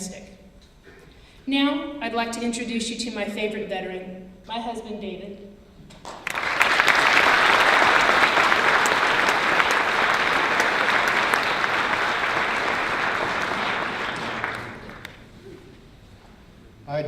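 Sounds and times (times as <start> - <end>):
audience applauding: 6.0 - 15.4.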